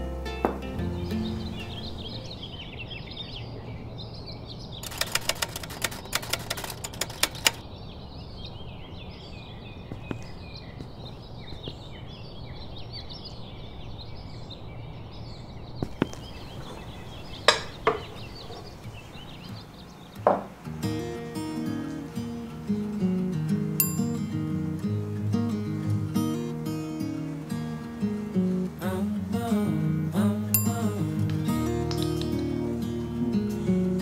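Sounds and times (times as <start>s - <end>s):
small birds chirping: 0.0s - 34.0s
run of sharp clicks: 4.8s - 7.6s
sharp knocks: 20.3s - 20.6s.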